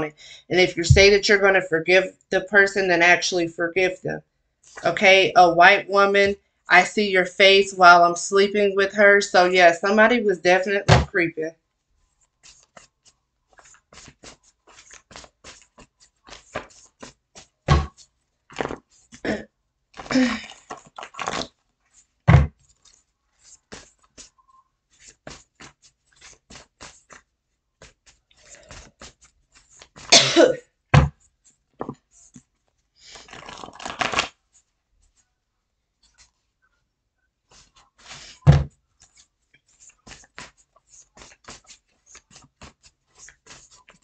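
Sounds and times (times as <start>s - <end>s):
cards shuffling: 12.1s - 19.2s, 20.0s - 30.1s, 31.4s - 35.2s, 37.5s - 44.0s
cards tapping and snapping: 12.4s - 19.0s, 23.7s - 24.3s, 25.0s - 27.2s, 33.3s - 34.3s, 39.0s - 44.0s.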